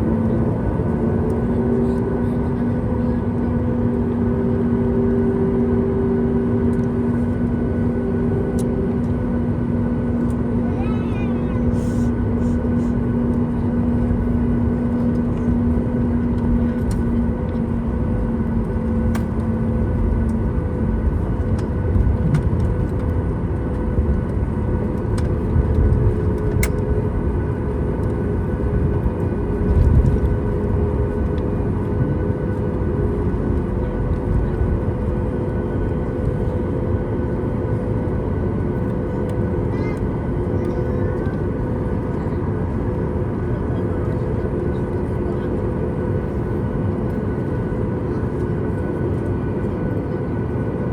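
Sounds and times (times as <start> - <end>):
jet engines at takeoff power: 0.0 - 50.9.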